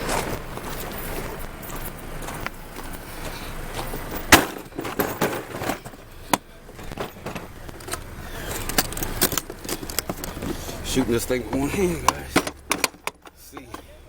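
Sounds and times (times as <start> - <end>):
metallic knocks of hand tools: 8.7 - 13.9.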